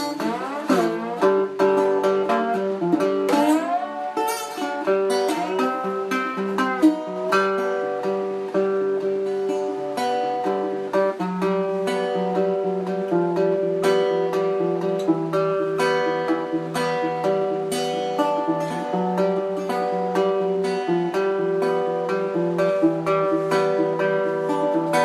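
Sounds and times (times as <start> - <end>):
acoustic guitar music: 0.0 - 25.0.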